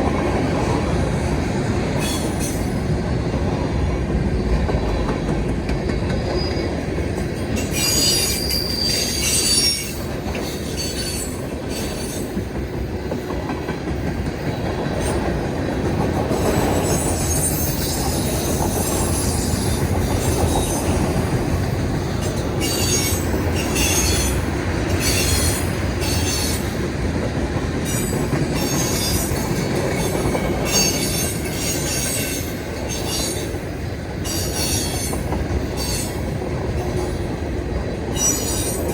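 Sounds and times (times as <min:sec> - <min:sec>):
train wheels rumbling on rail: 0:00.0 - 0:38.9
metallic wheel squeal: 0:07.6 - 0:10.0.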